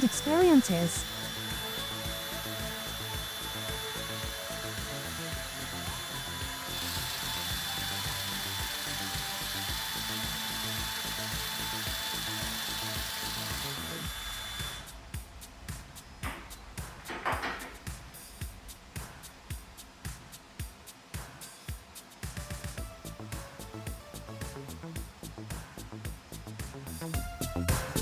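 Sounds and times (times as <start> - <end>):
electric motor whine: 0.0 - 15.0
fast mechanical rattle: 1.0 - 15.6.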